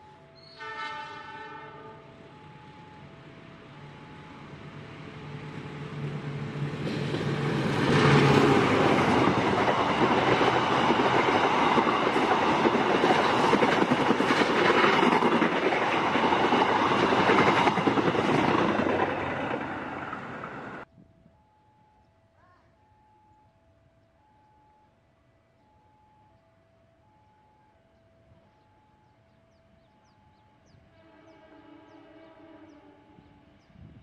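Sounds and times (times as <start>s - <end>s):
locomotive engine hum: 2.0s - 20.9s
train wheels rumbling on rails: 3.8s - 20.9s.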